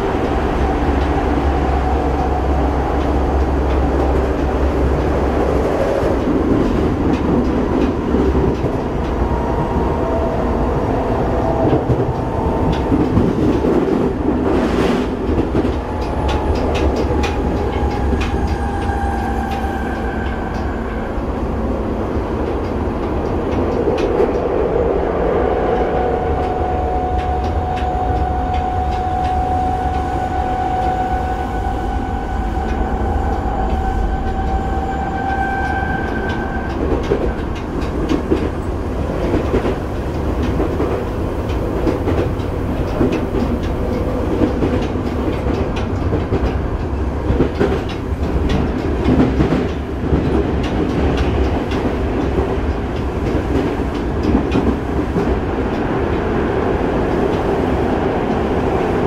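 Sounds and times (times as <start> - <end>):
rail joints clicking: 0.0 - 59.0
train wheels rumbling on rail: 0.0 - 59.0.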